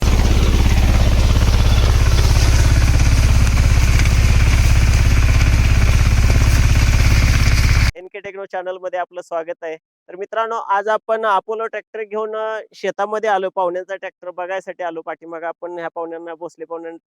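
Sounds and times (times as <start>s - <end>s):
diesel tractor engine knocking: 0.0s - 7.9s.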